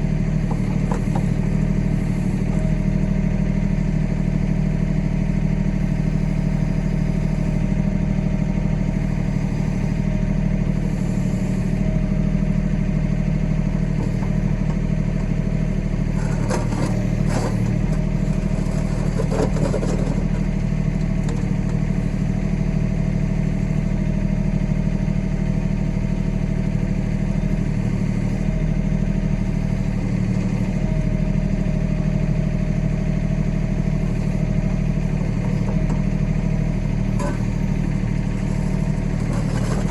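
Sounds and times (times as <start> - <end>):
tractor diesel engine running: 0.0 - 39.9
backhoe clatter: 0.1 - 5.2, 13.6 - 22.0, 26.7 - 39.9.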